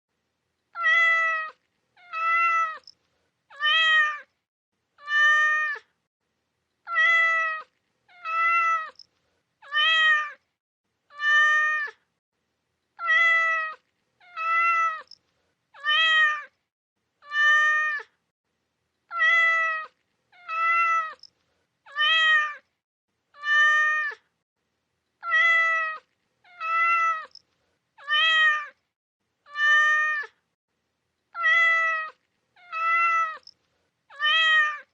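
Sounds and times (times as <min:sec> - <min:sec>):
cat meowing: 0:00.7 - 0:04.3, 0:05.0 - 0:05.9, 0:06.9 - 0:10.4, 0:11.1 - 0:12.0, 0:13.0 - 0:15.2, 0:15.8 - 0:16.6, 0:17.2 - 0:18.1, 0:19.1 - 0:21.3, 0:21.9 - 0:22.7, 0:23.4 - 0:24.2, 0:25.2 - 0:27.4, 0:28.0 - 0:28.8, 0:29.5 - 0:30.4, 0:31.3 - 0:34.9.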